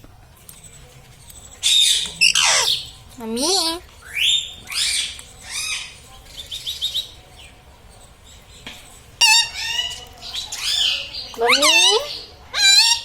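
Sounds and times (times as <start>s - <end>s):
parakeet chirping and squawking: 1.6s - 7.2s, 9.2s - 13.0s.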